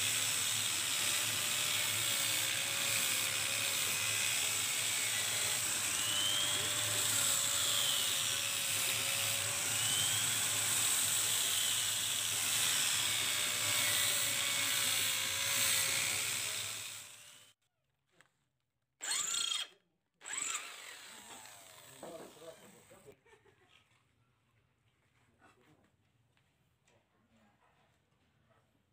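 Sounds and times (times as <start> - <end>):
power tool grinding steel: 0.0 - 17.6, 19.0 - 23.1.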